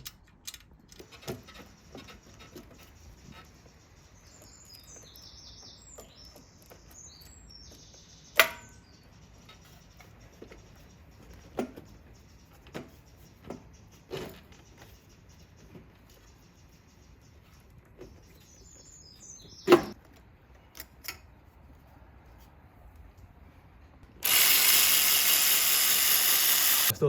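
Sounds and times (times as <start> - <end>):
metal parts clicking and knocking: 0.0 - 3.4.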